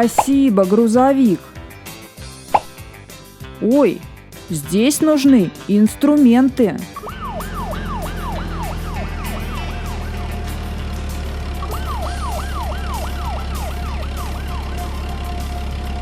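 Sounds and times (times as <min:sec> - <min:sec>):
siren whooping: 0:07.0 - 0:10.6, 0:11.6 - 0:15.9
low engine-like hum: 0:07.2 - 0:16.0.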